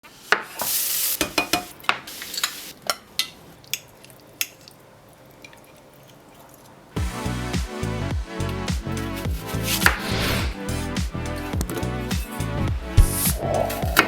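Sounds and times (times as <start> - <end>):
short hiss: 0.6 - 1.3.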